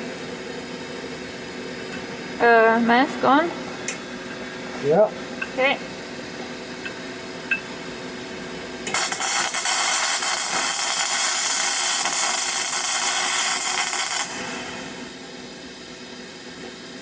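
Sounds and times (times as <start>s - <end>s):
welding arc crackling: 8.8s - 15.1s.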